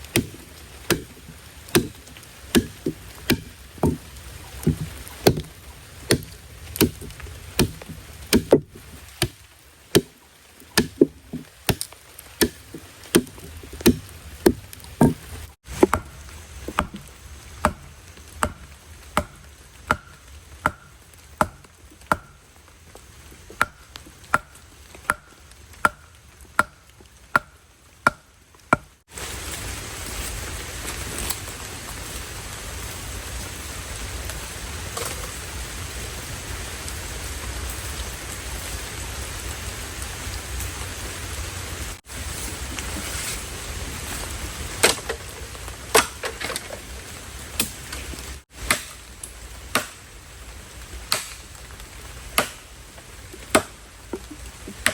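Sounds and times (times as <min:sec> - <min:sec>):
heavy rain falling: 0:00.0 - 0:26.6, 0:29.1 - 0:45.8.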